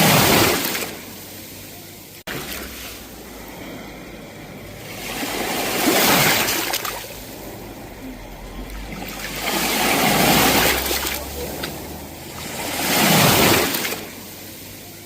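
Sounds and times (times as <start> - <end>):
sea waves washing onto shore: 0.0 - 15.0.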